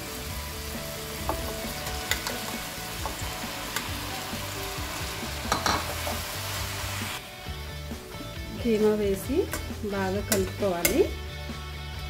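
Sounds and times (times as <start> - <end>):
meat sizzling in oil: 0.0 - 7.6.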